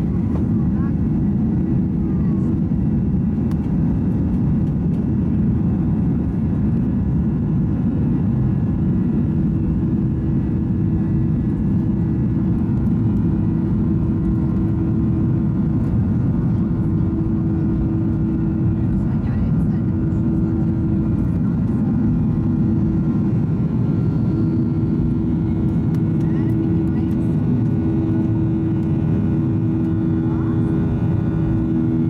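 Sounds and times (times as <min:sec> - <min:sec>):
airplane cabin engine rumble: 0:00.0 - 0:32.0
steady cabin hum: 0:08.9 - 0:32.0.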